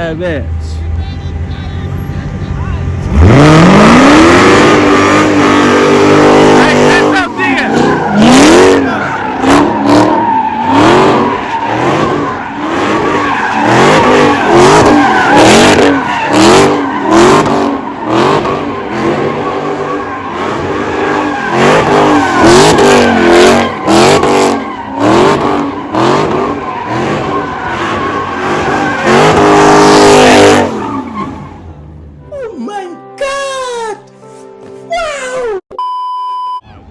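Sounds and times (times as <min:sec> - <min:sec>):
car engine revving: 0:00.0 - 0:32.2
tyres squealing: 0:04.8 - 0:31.7.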